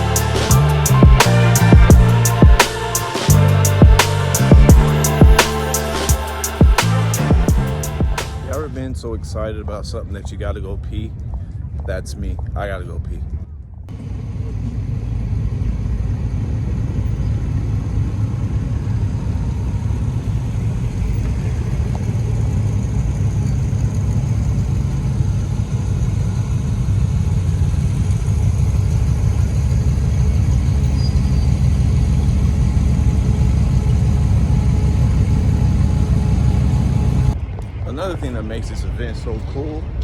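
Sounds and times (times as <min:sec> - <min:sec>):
low motor vehicle rumble: 0:00.0 - 0:40.0.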